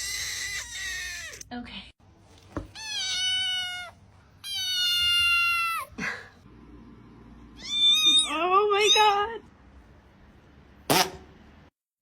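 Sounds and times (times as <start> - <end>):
cat meowing: 0.0 - 1.4, 2.7 - 5.9, 7.6 - 9.2.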